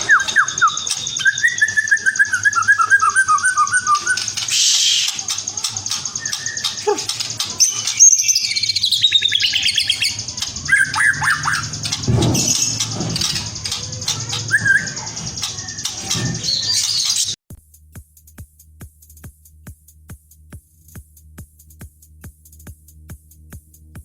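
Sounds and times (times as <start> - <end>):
bird singing whistles and trills: 0.0 - 17.4.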